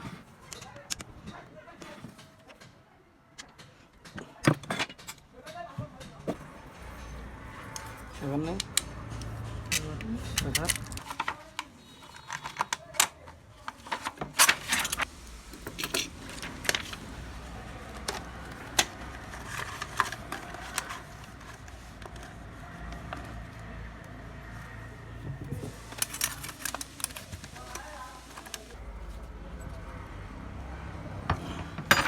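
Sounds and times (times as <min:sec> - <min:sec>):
metal parts and tools clinking: 0:06.0 - 0:17.2, 0:25.6 - 0:28.8, 0:31.3 - 0:32.0.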